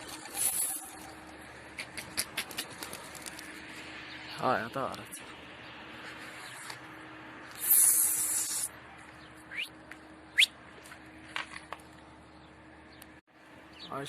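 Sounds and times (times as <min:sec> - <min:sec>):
faint hum: 0:00.0 - 0:14.0
bird chirps: 0:07.6 - 0:09.7.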